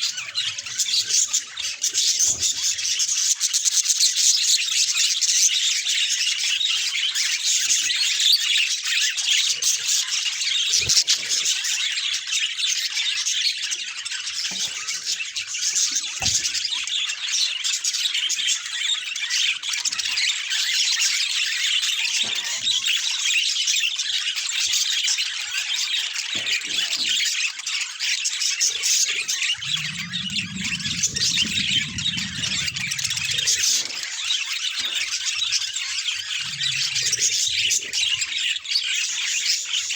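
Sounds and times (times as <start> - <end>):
low hum: 29.6 - 34.0.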